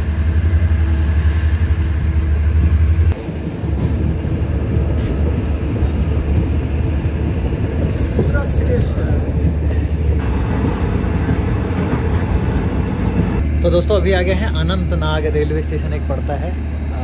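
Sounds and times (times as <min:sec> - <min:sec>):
passenger train rumbling: 0:00.0 - 0:17.0.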